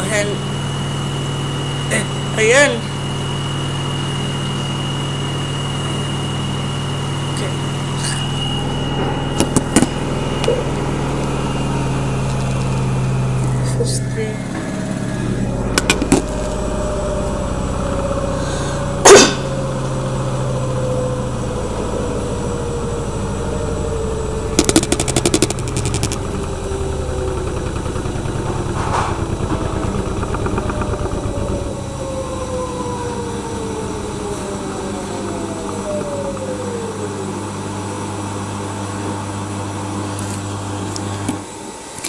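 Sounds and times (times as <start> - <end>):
washing machine spinning: 0.0 - 42.0
rattle of rapid ticks: 24.6 - 31.6.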